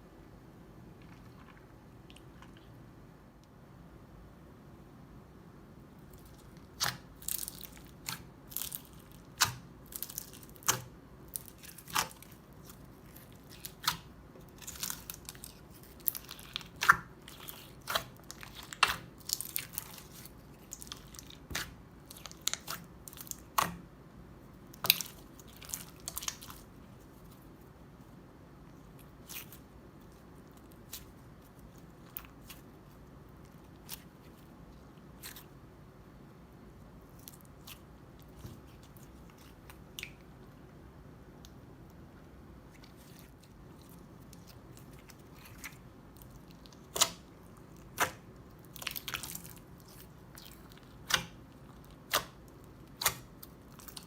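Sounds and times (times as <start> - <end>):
crunchy slime crackling and popping: 6.1 - 23.9, 24.6 - 27.5, 28.7 - 35.6, 42.7 - 54.0.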